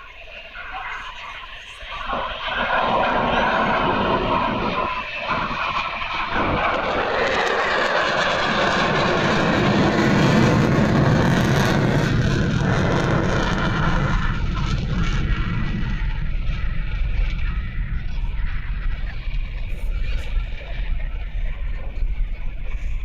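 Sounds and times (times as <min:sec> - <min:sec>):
airplane flying past: 0:00.0 - 0:23.0.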